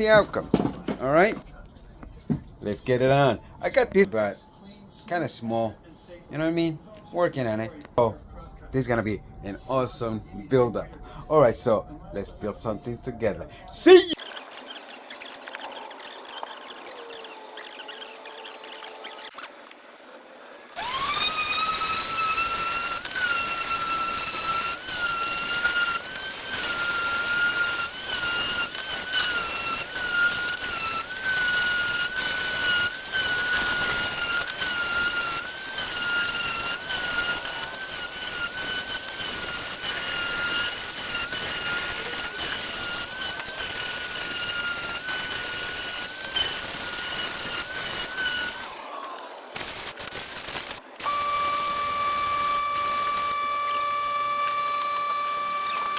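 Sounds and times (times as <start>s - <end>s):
electric power tool motor whine: 14.1s - 19.4s, 20.7s - 55.9s.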